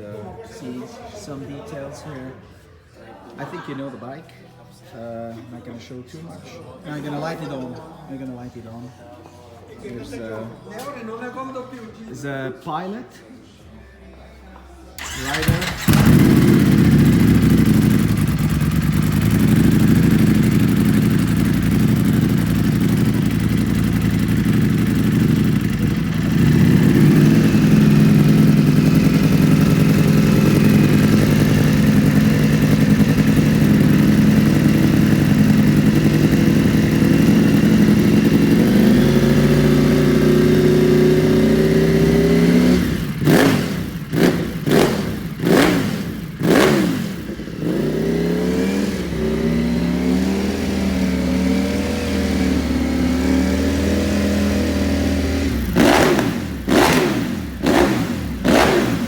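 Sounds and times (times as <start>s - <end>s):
motorcycle engine idling: 15.0s - 59.0s
motorcycle engine revving: 15.0s - 59.0s.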